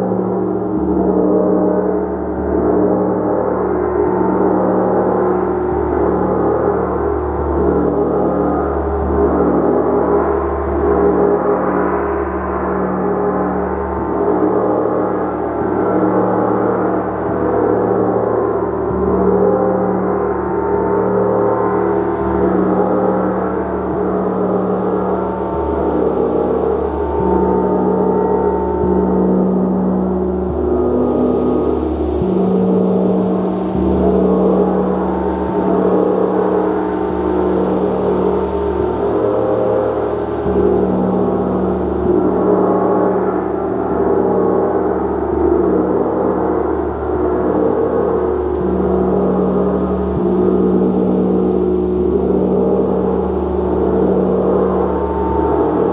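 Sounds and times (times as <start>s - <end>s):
gong ringing with mallet strokes: 7.6s - 55.9s
gong ringing: 21.8s - 44.4s.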